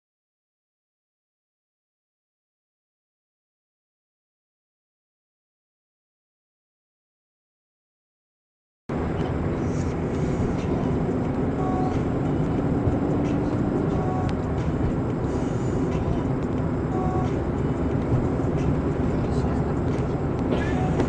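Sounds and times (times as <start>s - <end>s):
car road and engine noise: 8.9s - 21.0s.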